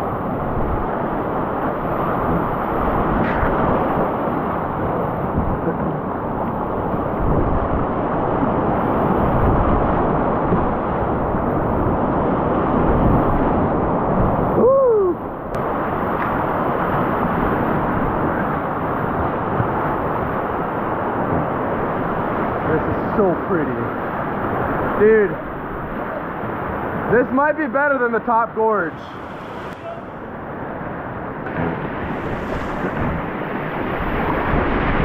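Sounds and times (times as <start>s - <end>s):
wind noise on microphone: 0.0s - 22.7s, 28.7s - 35.0s
creek water rushing: 28.4s - 35.0s
rising and falling tone: 28.5s - 34.2s.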